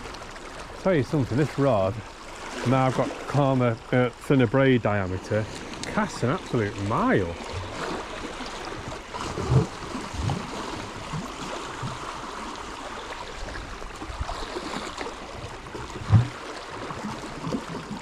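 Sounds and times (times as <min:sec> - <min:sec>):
sea water lapping against rocks: 0:00.0 - 0:18.0
dull low thumps: 0:09.3 - 0:11.2, 0:15.6 - 0:16.5.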